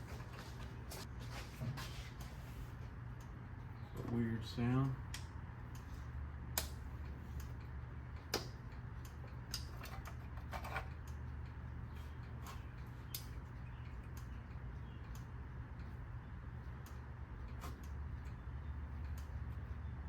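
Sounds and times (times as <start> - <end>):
engine running with low hum: 0.0 - 20.0
sharp clicks from distributor: 5.0 - 5.9, 6.5 - 9.7.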